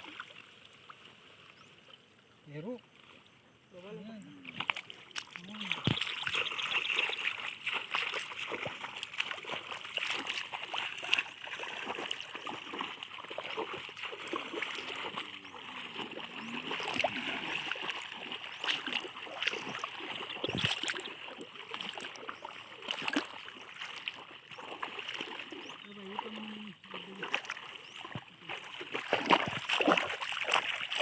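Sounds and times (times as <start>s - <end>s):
water splashing: 0.0s - 2.1s, 3.8s - 31.0s
flowing water rushing: 4.4s - 31.0s.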